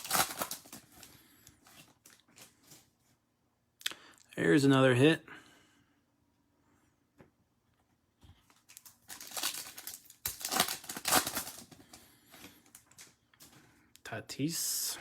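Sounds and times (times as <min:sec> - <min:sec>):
plastic packaging crinkling: 0:00.0 - 0:03.0, 0:08.4 - 0:13.2.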